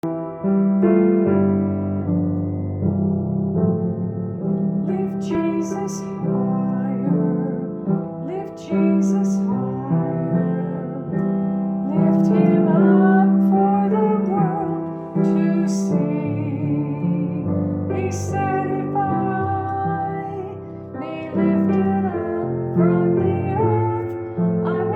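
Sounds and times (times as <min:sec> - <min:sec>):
electric piano chords: 0:00.0 - 0:24.9
woman singing: 0:04.9 - 0:11.2, 0:11.8 - 0:24.9.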